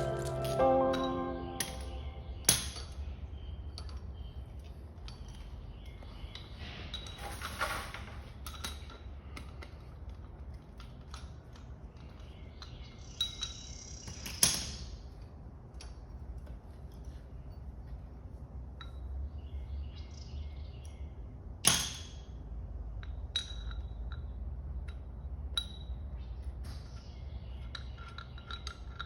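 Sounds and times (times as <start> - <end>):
small metal parts clinking: 0.0 - 1.9, 23.0 - 26.0, 27.6 - 29.0.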